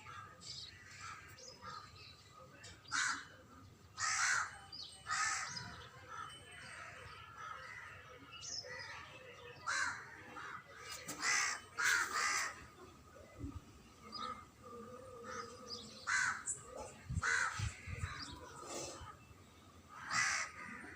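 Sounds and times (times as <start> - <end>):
crows cawing: 0.0 - 1.8, 2.9 - 3.4, 4.0 - 6.3, 9.6 - 12.6, 15.1 - 16.5, 17.2 - 18.5, 19.9 - 20.9.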